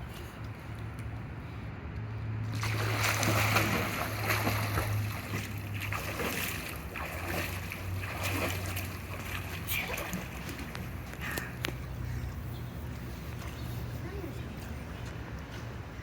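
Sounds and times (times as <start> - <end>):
steady low hum: 0.0 - 16.0
pool water splashing: 2.4 - 11.5.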